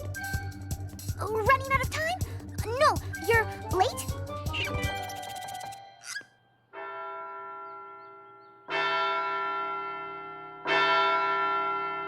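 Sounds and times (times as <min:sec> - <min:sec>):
large bell tolling: 0:06.7 - 0:12.0.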